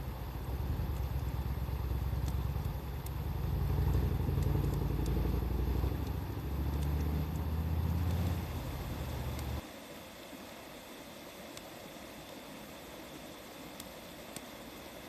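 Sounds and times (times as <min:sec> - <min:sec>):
steady low rumble: 0:00.0 - 0:09.6
wood fire crackling: 0:00.0 - 0:09.6.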